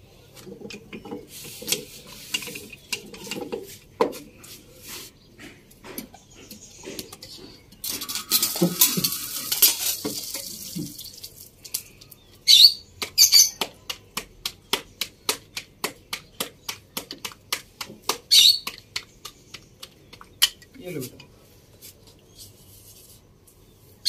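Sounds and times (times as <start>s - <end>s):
flatbread sizzling in oil: 8.0s - 11.6s
high bird chirps: 12.0s - 13.6s, 18.3s - 18.7s.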